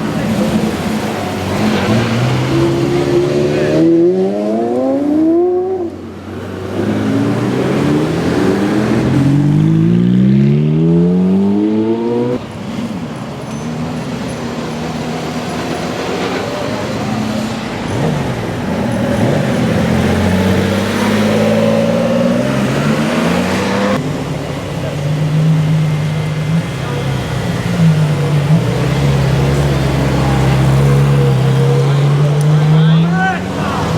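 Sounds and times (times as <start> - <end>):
car engine accelerating hard: 0.0 - 12.8, 14.5 - 33.9.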